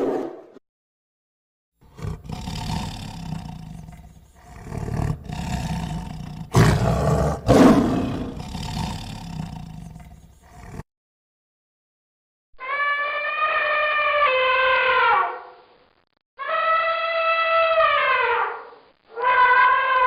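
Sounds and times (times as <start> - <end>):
elephant rumbling roars: 1.8 - 10.8.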